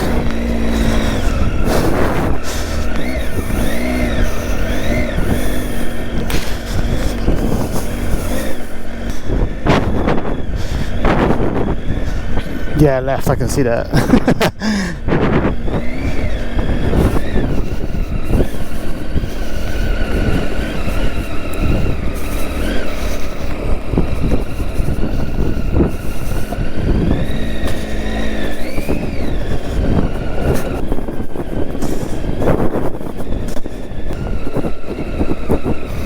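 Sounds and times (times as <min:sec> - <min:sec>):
low rumble: 0:00.0 - 0:13.0
motorcycle engine revving: 0:00.0 - 0:36.0.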